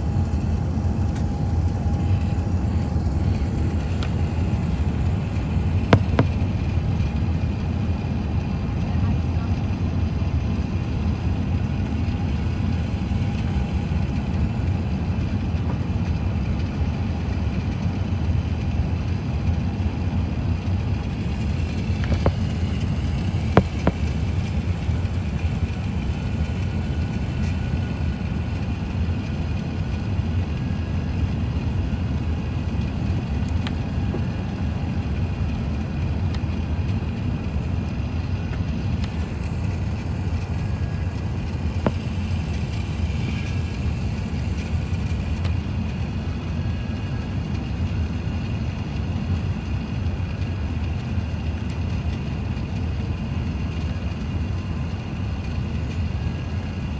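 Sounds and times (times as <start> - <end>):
airplane cabin rumble: 0.0 - 56.9.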